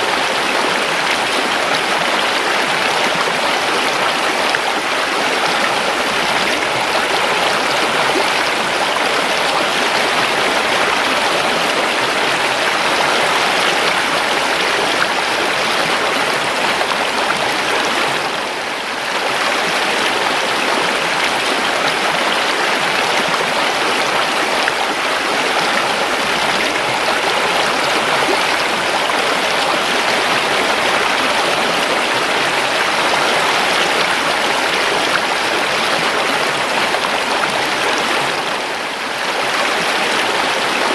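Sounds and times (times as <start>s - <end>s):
river water flowing over rocks: 0.0s - 40.9s.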